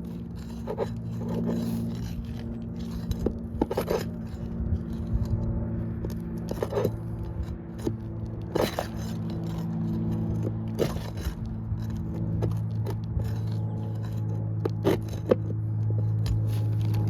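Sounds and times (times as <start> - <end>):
pry tool scraping under shingles: 0.0 - 17.0.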